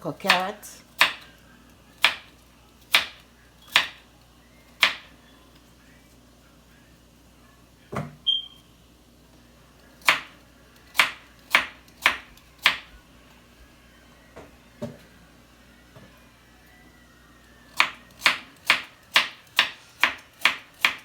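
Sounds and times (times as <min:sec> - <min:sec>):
knife chopping on cutting board: 0:00.3 - 0:01.3, 0:02.0 - 0:02.3, 0:02.9 - 0:04.0, 0:04.8 - 0:05.1, 0:10.0 - 0:10.3, 0:10.9 - 0:12.9, 0:17.8 - 0:21.0.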